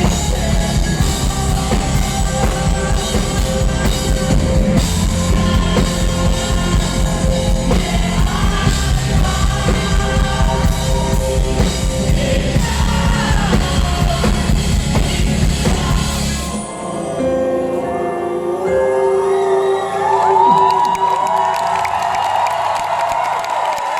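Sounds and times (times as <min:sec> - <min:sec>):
bass guitar: 0:00.0 - 0:16.7
drums: 0:00.0 - 0:17.0
person singing: 0:00.0 - 0:21.1.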